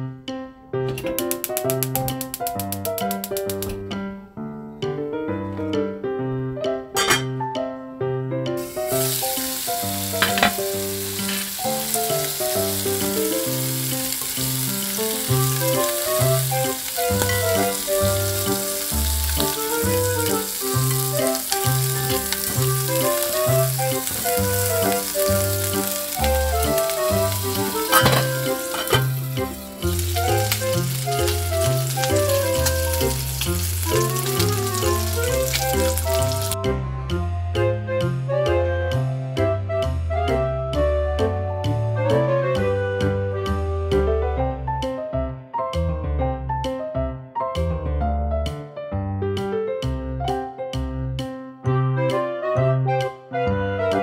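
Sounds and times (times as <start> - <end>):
skewers sizzling in a frying pan: 8.6 - 36.6
background music with bass line: 11.8 - 54.0.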